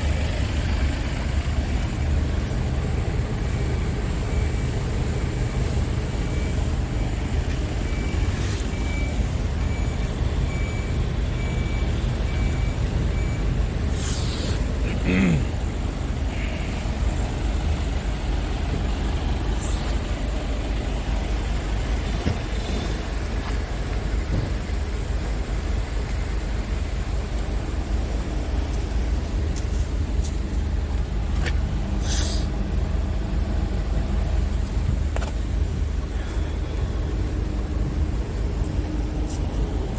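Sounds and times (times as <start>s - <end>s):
diesel truck engine running: 0.0s - 39.9s
air hiss: 13.9s - 14.7s.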